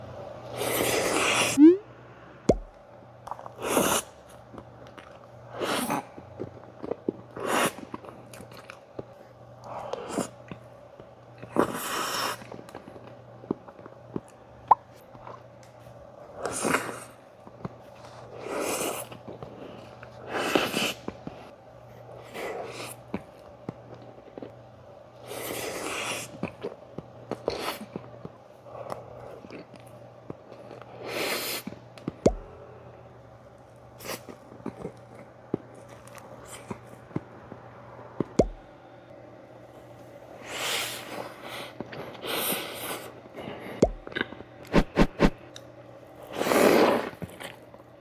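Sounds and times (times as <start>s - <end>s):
wet chewing and mouth noises: 2.5s - 17.0s, 25.4s - 32.7s, 38.2s - 38.6s, 41.4s - 45.6s.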